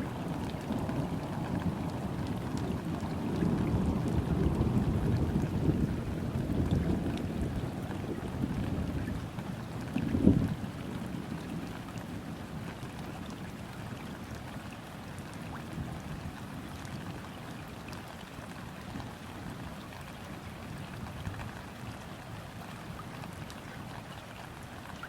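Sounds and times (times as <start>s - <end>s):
rain falling on river: 0.0s - 25.0s.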